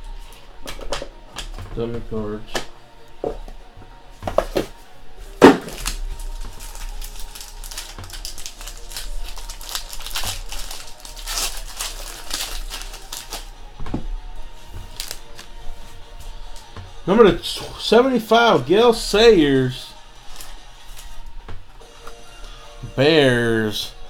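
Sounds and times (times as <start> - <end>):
background music: 0.0 - 24.0
cards and packaging rustling: 4.2 - 22.6.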